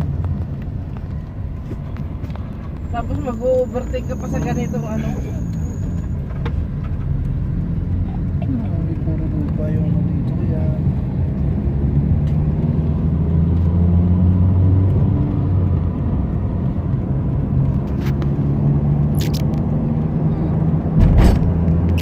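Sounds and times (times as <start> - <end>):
car engine and road noise: 0.0 - 22.0
sharp clicks: 19.1 - 19.6
loud thump: 20.9 - 21.7.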